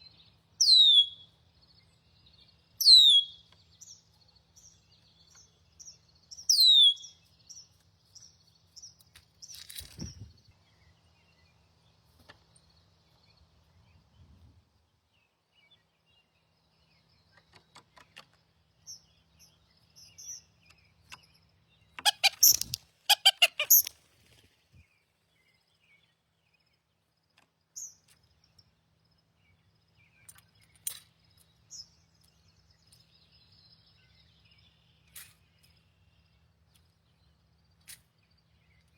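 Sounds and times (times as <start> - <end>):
songbird chips: 6.4 - 10.4, 22.0 - 24.6, 34.2 - 36.0
harsh bird calls: 22.0 - 23.9.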